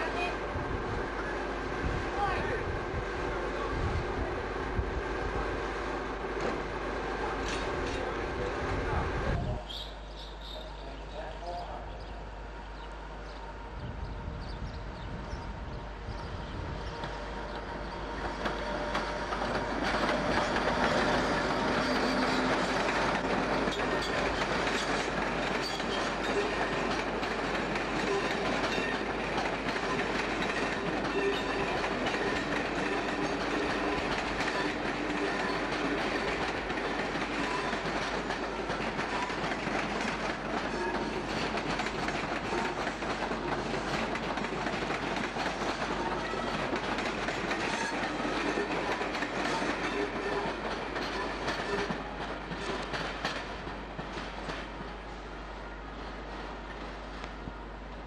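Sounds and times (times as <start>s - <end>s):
train rolling rumble: 0.0s - 58.0s
train wheels clattering over rail joints: 7.4s - 8.2s, 17.0s - 55.0s.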